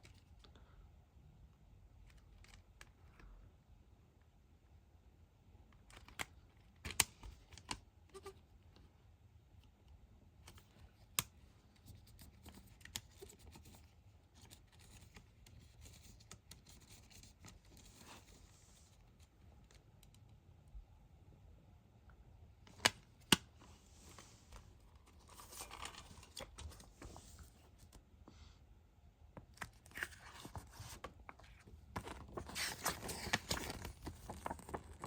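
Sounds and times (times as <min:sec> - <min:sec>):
soft rustle of packaging: 0:00.0 - 0:04.4, 0:05.6 - 0:20.9, 0:22.6 - 0:35.0.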